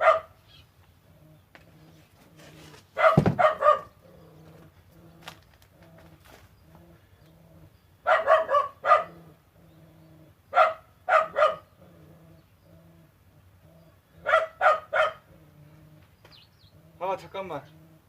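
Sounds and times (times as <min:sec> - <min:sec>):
dog barking: 0:00.0 - 0:00.4, 0:03.0 - 0:04.0, 0:08.0 - 0:09.2, 0:10.5 - 0:11.7, 0:14.2 - 0:15.3.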